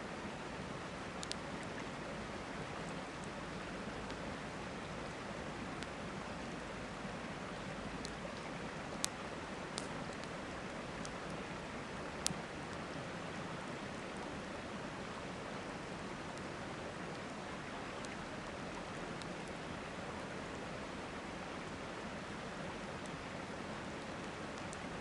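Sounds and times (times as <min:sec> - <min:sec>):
campfire crackling and popping: 0:08.9 - 0:10.4.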